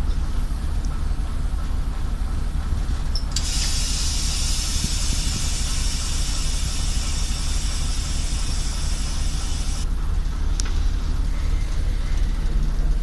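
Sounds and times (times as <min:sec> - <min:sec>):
diesel engine drone: 0:00.0 - 0:13.0
compressed air hissing: 0:03.4 - 0:09.8.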